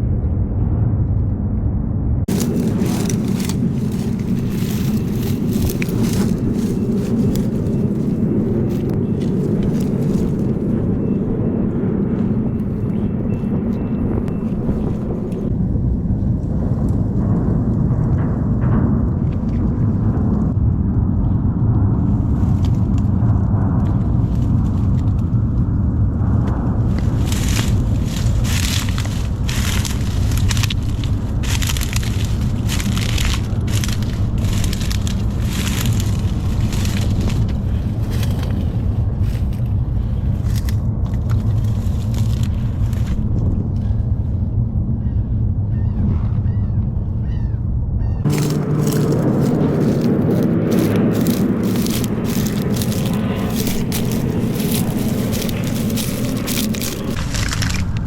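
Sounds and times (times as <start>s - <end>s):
loud low rumble: 0.0s - 58.0s
steady hum: 0.0s - 58.0s
clicking and crackling: 2.3s - 11.0s, 26.4s - 38.7s, 48.3s - 58.0s.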